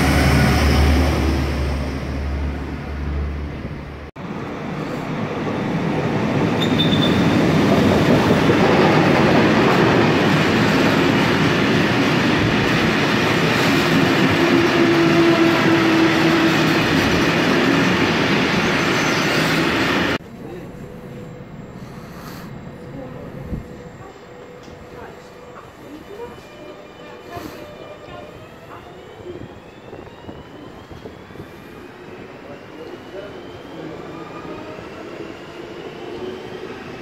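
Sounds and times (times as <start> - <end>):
freight train wheels rumbling: 0.0 - 21.8.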